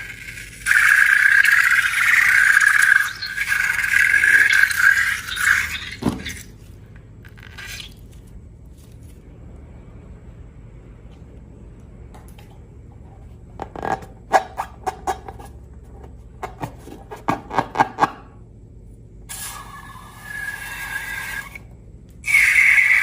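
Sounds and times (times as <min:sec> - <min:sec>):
hissing rush with whistling tone: 0:00.6 - 0:06.0, 0:19.3 - 0:23.0.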